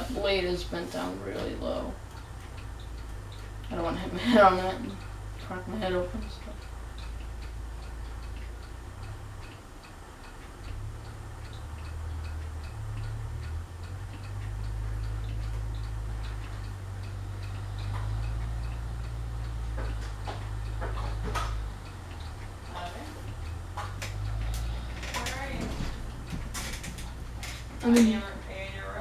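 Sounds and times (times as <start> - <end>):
ceiling fan ticking and humming: 0.0 - 29.0
clicks and knocks: 23.5 - 28.1.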